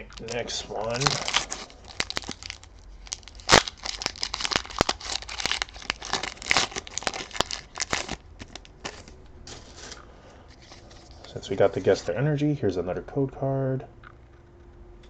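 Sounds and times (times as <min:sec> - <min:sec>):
foil wrapper crinkling and tearing: 0:00.0 - 0:12.0.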